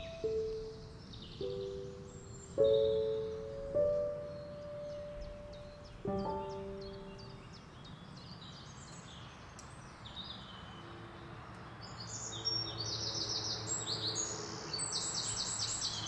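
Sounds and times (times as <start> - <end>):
outdoor background noise: 0.0 - 16.0
small birds chirping: 0.0 - 16.0.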